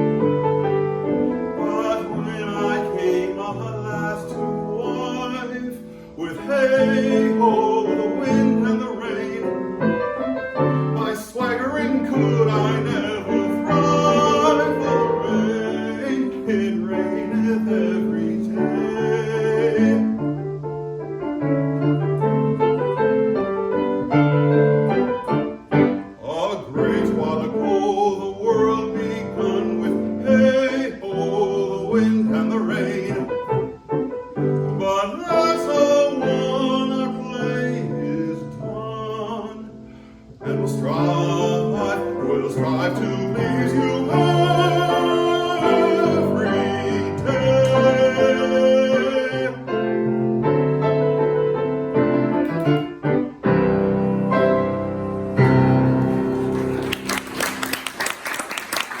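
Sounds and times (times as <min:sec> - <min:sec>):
baritone singing art song: 0:00.0 - 0:20.8, 0:24.7 - 0:51.1
piano accompaniment: 0:00.0 - 0:59.0.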